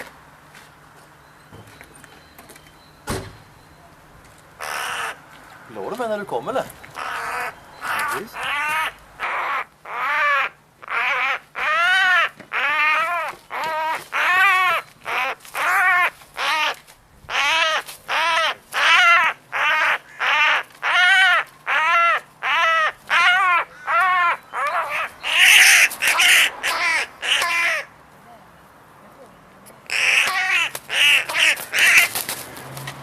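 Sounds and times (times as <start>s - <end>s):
crow cawing: 4.6s - 5.2s, 6.9s - 27.9s, 29.9s - 32.2s.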